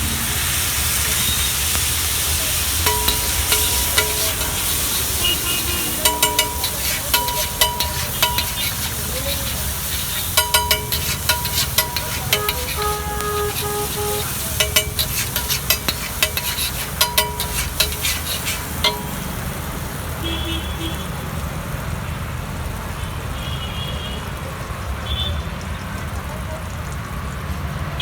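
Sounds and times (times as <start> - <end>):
egg sizzling: 0.0 - 20.4
street traffic rumble: 0.0 - 28.0
metal spatula clanging on griddle: 2.8 - 19.7.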